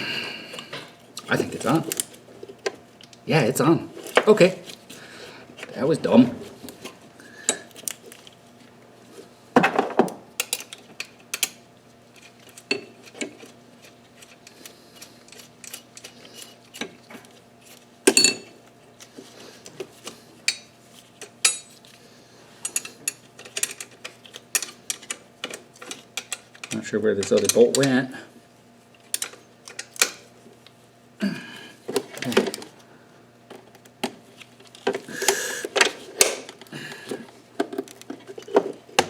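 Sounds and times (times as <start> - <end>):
metal tools clinking and knocking: 18.1 - 18.5, 21.4 - 21.8, 22.6 - 24.0, 25.8 - 28.0.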